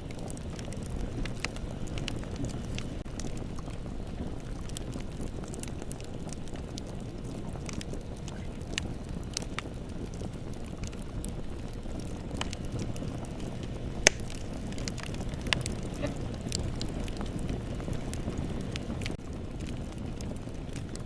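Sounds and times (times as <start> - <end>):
bonfire flames rumbling: 0.0 - 21.0
burning wood crackling and popping: 0.0 - 21.0.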